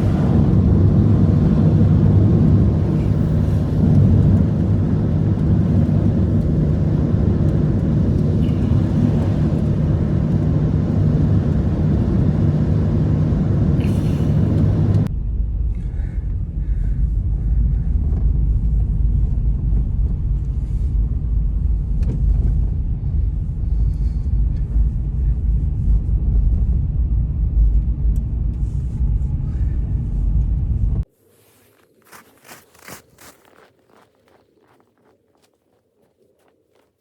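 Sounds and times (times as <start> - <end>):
blizzard wind buffeting microphone: 0.0 - 36.8
sharp crunches: 31.2 - 37.0.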